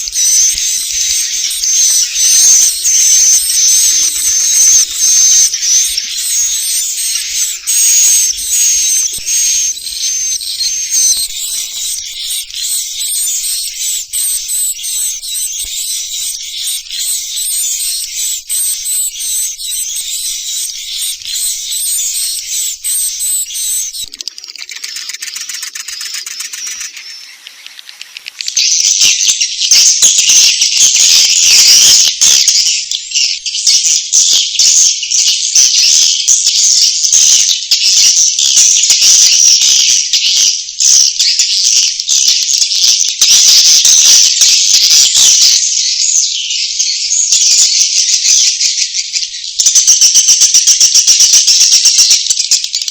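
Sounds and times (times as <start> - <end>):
birds twittering and chirping: 0.0 - 52.9.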